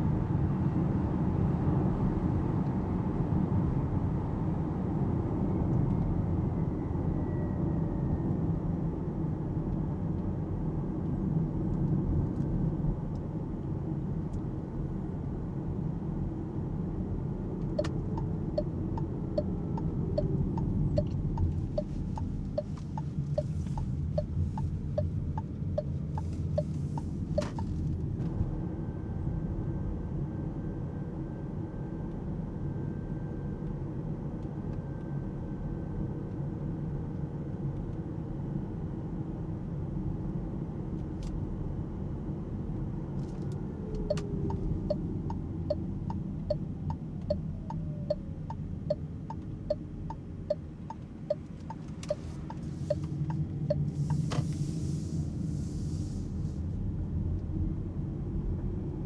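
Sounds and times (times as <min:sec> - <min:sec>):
turn signal ticking: 0:17.5 - 0:28.2, 0:43.2 - 0:55.8.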